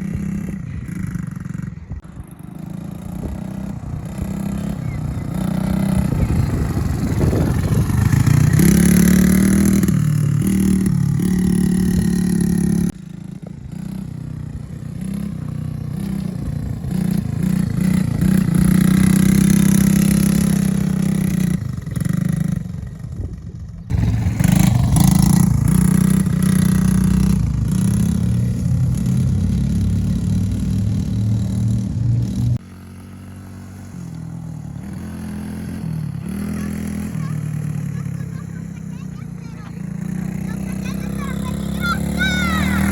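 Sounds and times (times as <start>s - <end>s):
small engine revving: 0.0s - 42.9s.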